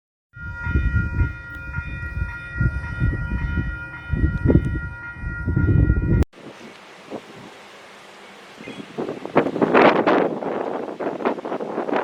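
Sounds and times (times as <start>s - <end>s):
train passing with rumble: 0.4s - 6.2s.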